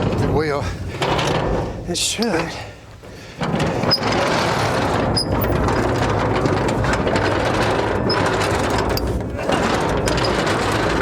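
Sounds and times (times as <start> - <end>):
machine running with rattle: 3.4 - 11.0.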